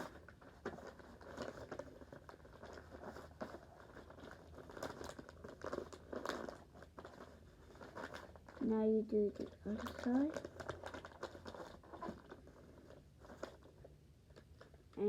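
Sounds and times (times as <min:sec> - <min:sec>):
paper crinkling and rustling: 0:00.0 - 0:15.0.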